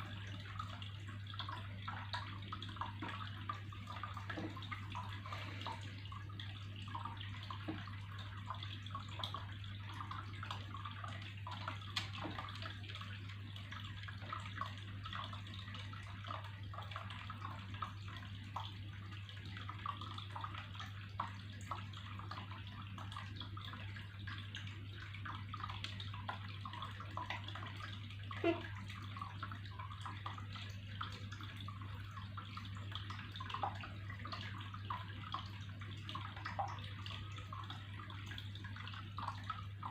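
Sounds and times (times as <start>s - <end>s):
water plop: 0.0s - 17.9s
water trickling and splashing: 0.0s - 39.9s.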